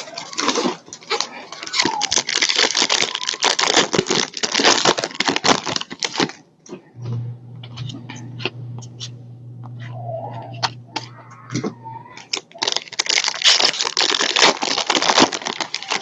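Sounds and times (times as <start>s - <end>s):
wrappers crinkling and tearing: 0.0s - 6.9s, 10.5s - 16.0s
steady low hum: 6.9s - 12.4s.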